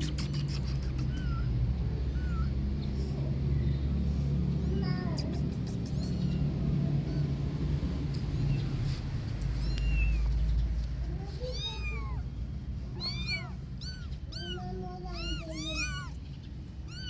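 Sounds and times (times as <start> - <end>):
kittens meowing: 0.0 - 3.3, 5.2 - 7.4, 9.4 - 10.6, 11.3 - 17.0
steady low rumble: 0.1 - 17.0.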